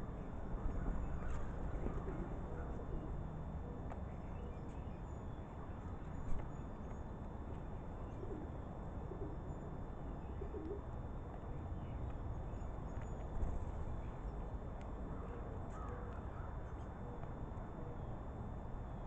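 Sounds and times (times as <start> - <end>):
birds cooing: 0.7 - 3.2, 8.0 - 9.6, 10.2 - 10.9.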